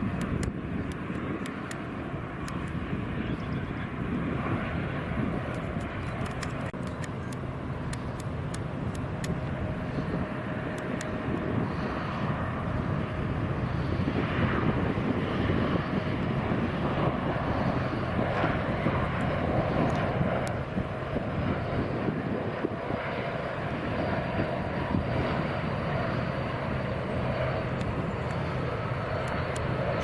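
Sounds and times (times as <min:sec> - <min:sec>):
jet engines running: 0:00.0 - 0:30.0.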